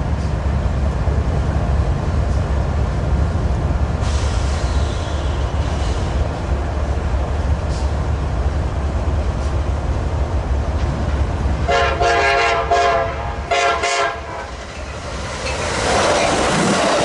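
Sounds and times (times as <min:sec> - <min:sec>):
train passing on rails: 0:00.0 - 0:17.0
train horn blasts: 0:11.7 - 0:14.5.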